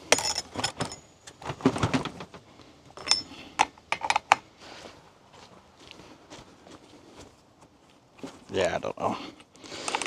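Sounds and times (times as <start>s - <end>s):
chainsaw chain clicking and knocking: 0.0s - 1.1s, 3.0s - 4.4s, 9.8s - 10.0s.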